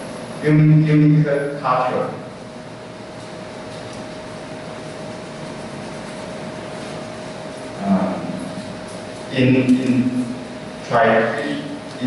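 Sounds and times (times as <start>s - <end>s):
room hum with constant tone: 0.0s - 12.0s
person humming: 7.8s - 8.4s.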